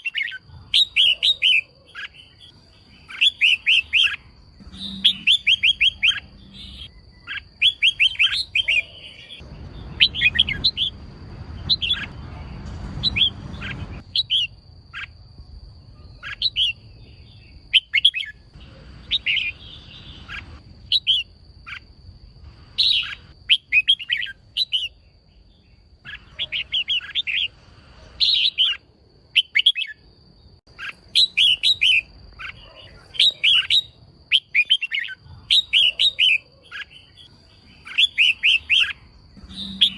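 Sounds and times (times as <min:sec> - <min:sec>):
low rumbling noise: 0:09.4 - 0:17.7, 0:18.5 - 0:23.3.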